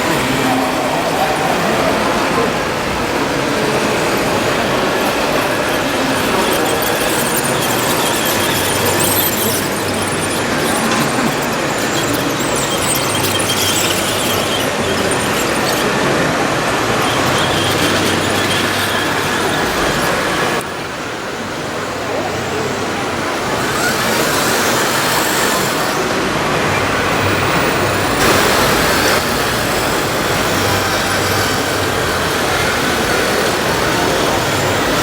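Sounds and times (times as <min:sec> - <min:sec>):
model bulldozer running: 0:00.0 - 0:35.0
murmur of voices: 0:00.0 - 0:35.0.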